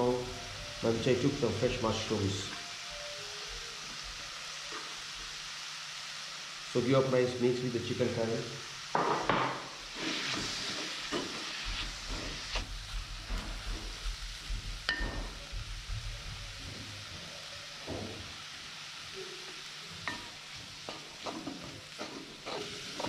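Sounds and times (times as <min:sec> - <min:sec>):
chicken and mushrooms sizzling: 0:00.0 - 0:23.0
spatula knocking on pot: 0:14.9 - 0:15.6
wooden spatula scraping pot: 0:20.9 - 0:23.0.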